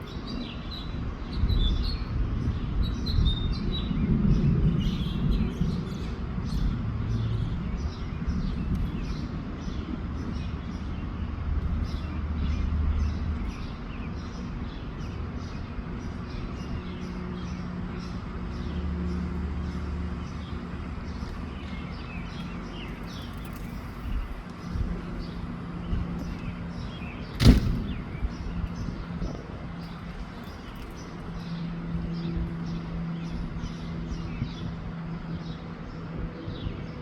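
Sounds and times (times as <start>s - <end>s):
sharp knock: 27.4s - 28.0s.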